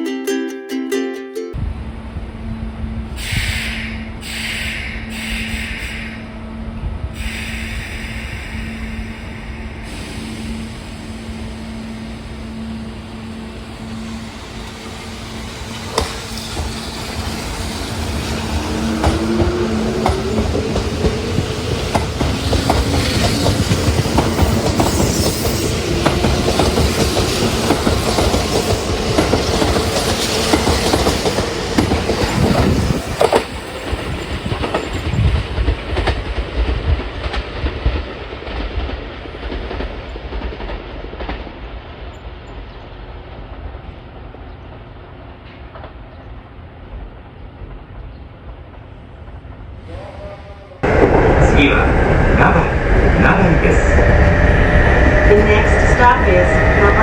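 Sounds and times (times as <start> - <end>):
train wheels clacking over rail joints: 14.6 - 41.7.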